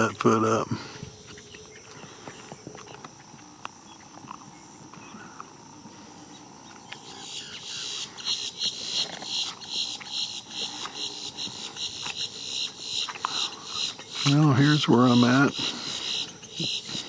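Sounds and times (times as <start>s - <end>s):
high-pitched rhythmic chirping: 7.0s - 17.0s.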